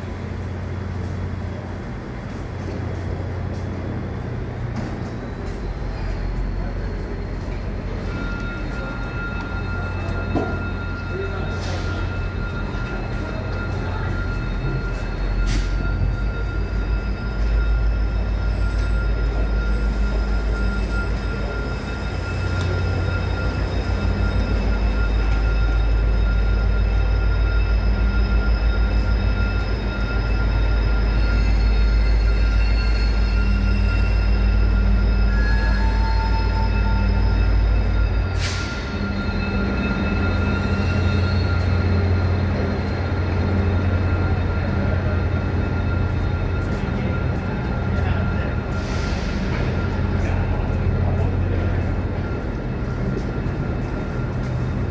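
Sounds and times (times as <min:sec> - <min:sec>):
diesel train rumbling: 0:00.0 - 0:54.9.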